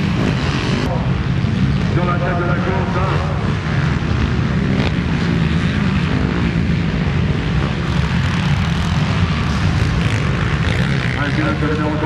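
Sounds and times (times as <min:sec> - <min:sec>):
motocross bike engines droning: 0:00.0 - 0:12.0.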